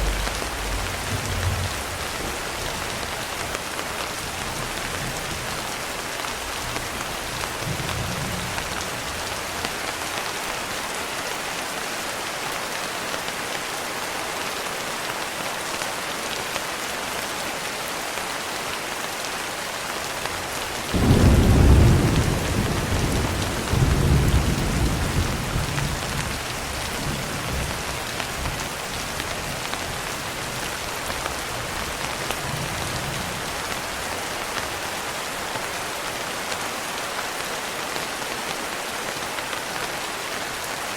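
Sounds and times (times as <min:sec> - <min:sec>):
thunder rumbling: 0:00.0 - 0:03.5, 0:20.9 - 0:28.8
steady rain: 0:00.0 - 0:40.9.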